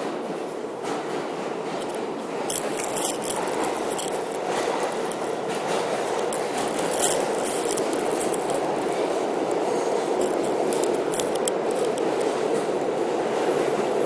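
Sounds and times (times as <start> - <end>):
sharp clicks and rattles: 1.6 - 14.0.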